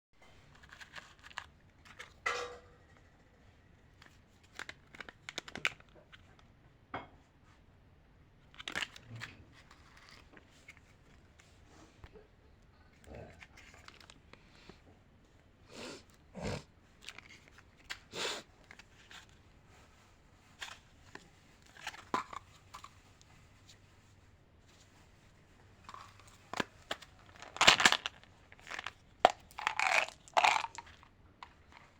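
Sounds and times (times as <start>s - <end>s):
candy packaging crinkling: 0.3s - 2.2s, 4.0s - 6.1s, 8.4s - 10.9s, 25.8s - 31.9s
plastic wrappers crinkling: 25.8s - 31.9s.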